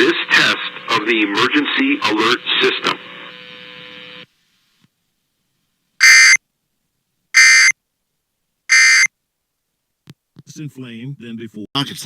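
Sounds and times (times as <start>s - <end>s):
faint broadcast hum: 0.0s - 12.0s
digital tone bursts: 6.0s - 6.4s, 7.4s - 7.8s, 8.7s - 9.1s.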